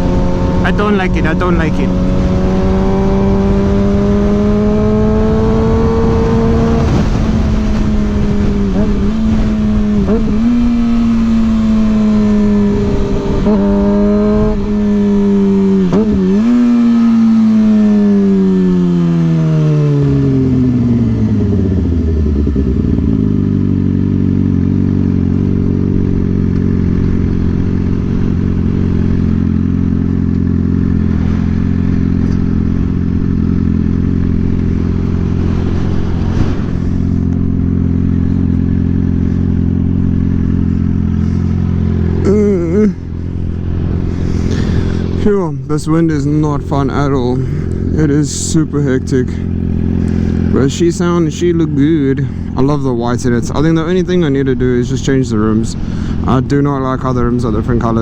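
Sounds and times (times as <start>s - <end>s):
motorcycle engine revving: 0.0s - 58.0s
wind on microphone: 34.3s - 38.3s.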